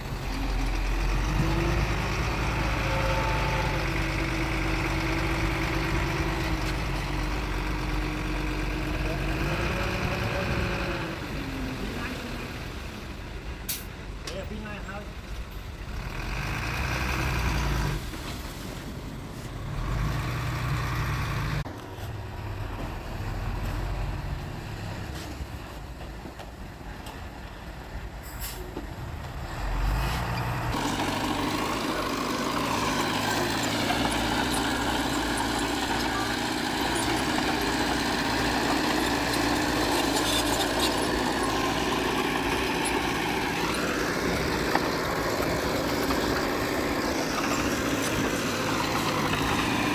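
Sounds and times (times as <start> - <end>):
heavy machinery diesel engines: 0.0 - 49.9.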